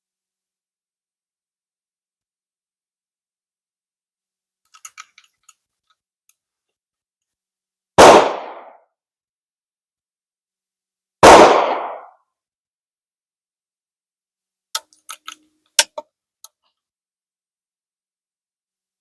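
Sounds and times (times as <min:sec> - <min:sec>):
rifle shots: 0:08.0 - 0:08.6, 0:11.2 - 0:12.0.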